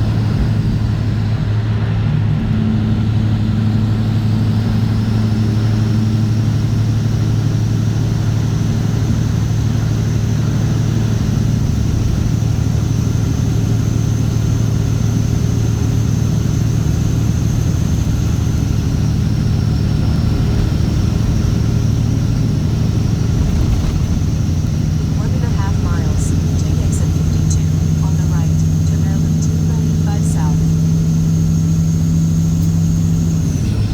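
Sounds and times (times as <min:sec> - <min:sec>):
diesel exhaust drone: 0:00.0 - 0:33.9
faint high whine: 0:24.4 - 0:33.9.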